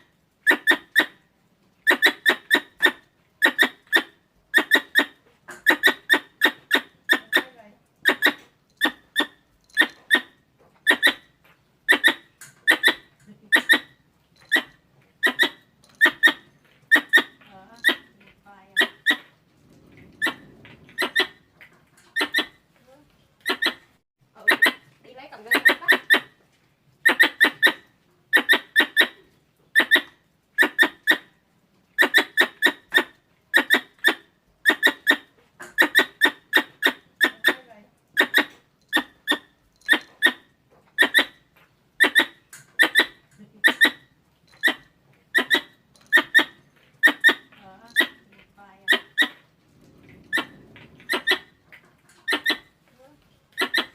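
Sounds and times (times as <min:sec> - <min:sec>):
squeaky squirrel call chirps: 0:00.4 - 0:01.2, 0:01.8 - 0:18.1, 0:22.2 - 0:22.6, 0:23.4 - 0:26.4, 0:27.0 - 0:31.3, 0:32.0 - 0:37.6, 0:38.2 - 0:48.2, 0:48.9 - 0:49.4, 0:50.3 - 0:51.6, 0:52.2 - 0:52.7, 0:53.6 - 0:53.9.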